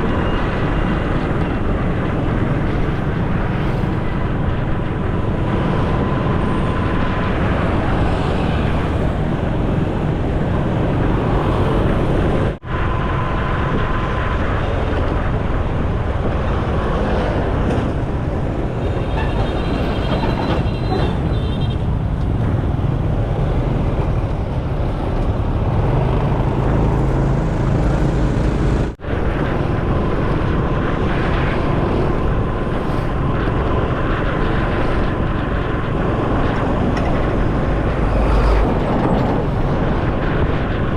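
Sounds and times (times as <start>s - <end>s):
road traffic: 0.0s - 40.9s
motorcycle engine riding: 24.2s - 40.8s.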